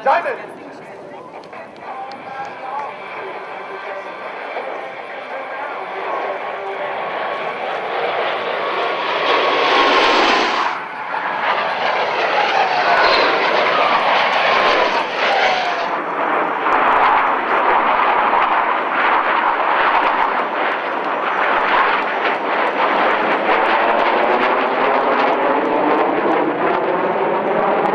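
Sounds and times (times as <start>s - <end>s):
jets flying past: 0.0s - 27.9s
falling jet whine: 1.9s - 20.9s.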